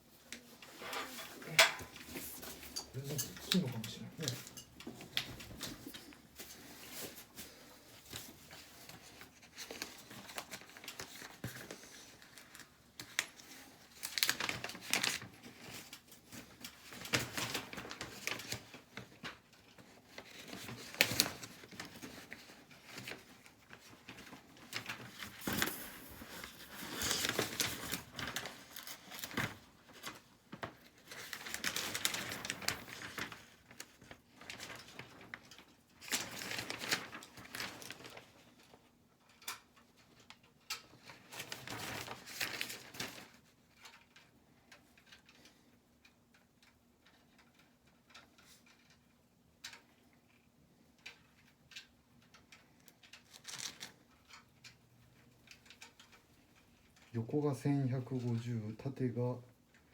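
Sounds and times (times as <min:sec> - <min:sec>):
rustling and crinkling: 0:00.0 - 0:59.9.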